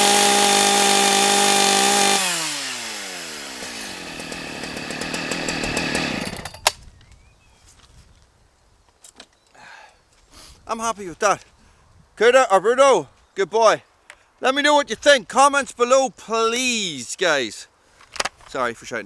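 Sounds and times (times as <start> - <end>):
chainsaw revving: 0.0 - 6.7.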